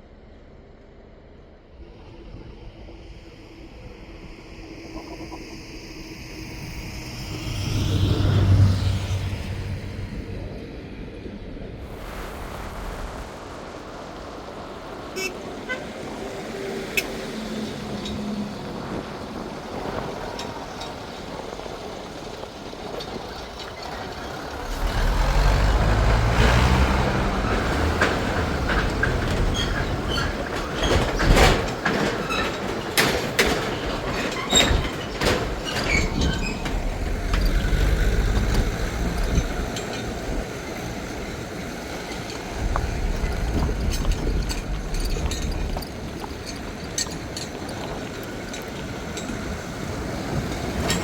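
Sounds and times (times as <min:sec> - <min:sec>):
vehicle engine running: 0:18.3 - 0:29.9
sharp knocks and clanks: 0:23.0 - 0:40.5, 0:42.0 - 0:49.7.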